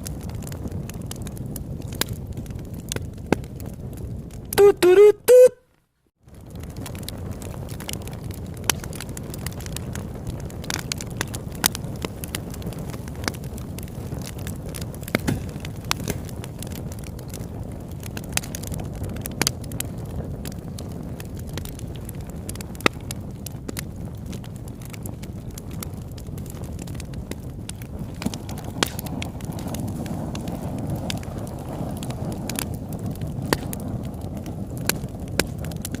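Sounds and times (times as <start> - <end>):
low rush of flame: 0.0 - 4.6, 6.2 - 36.0
wood crackling and popping: 0.0 - 36.0.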